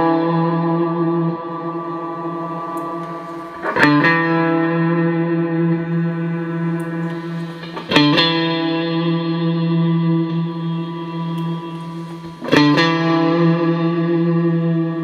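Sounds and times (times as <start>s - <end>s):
clean electric guitar chords with reverb: 0.0s - 15.0s.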